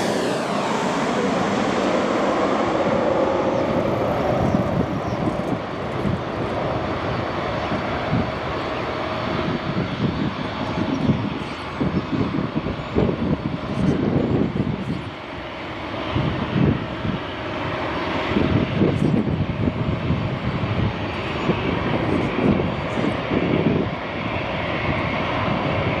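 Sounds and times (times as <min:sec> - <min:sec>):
low rumble: 0:00.0 - 0:06.7
jet engines roaring: 0:00.0 - 0:26.0.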